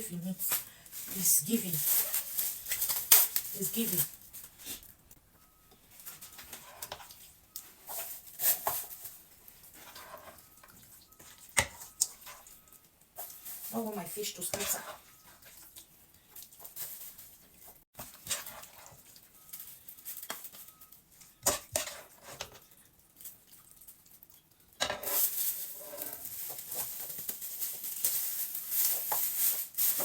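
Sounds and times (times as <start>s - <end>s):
spoon scraping in pot: 6.2s - 9.0s, 9.6s - 12.6s, 14.4s - 15.8s, 18.0s - 19.2s, 21.3s - 22.6s, 24.9s - 26.8s.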